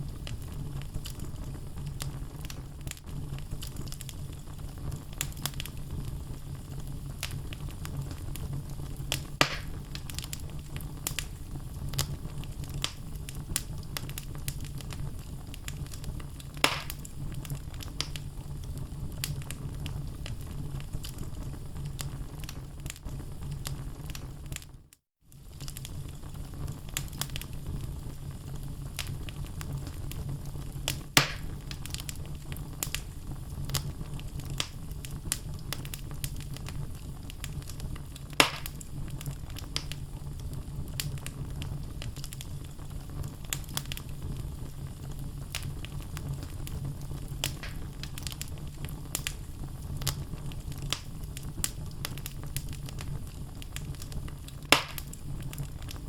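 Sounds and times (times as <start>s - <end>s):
fire low rumble: 0.0s - 56.0s
logs crackling in fireplace: 0.0s - 56.0s
loud wood pops: 9.4s - 9.8s, 16.6s - 17.0s, 31.2s - 31.5s, 38.4s - 38.8s, 47.5s - 47.8s, 54.7s - 55.2s.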